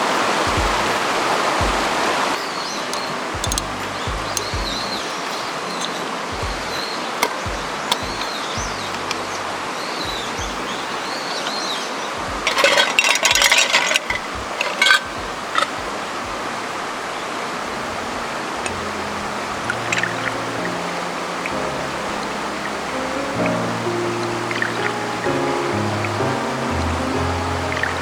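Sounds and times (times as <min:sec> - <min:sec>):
mountain stream rushing: 0:00.0 - 0:28.0
clinking and clattering: 0:12.5 - 0:15.1.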